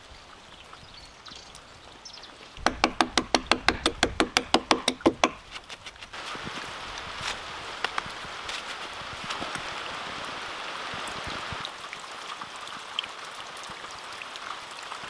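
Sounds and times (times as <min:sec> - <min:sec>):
steady hiss: 0:06.1 - 0:11.7.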